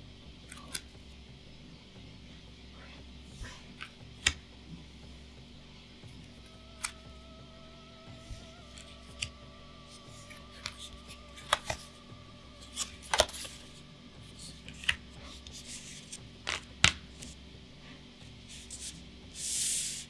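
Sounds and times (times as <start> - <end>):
trading cards snapping and tapping: 0.4 - 1.2, 3.4 - 5.1, 6.0 - 7.2, 8.1 - 17.4.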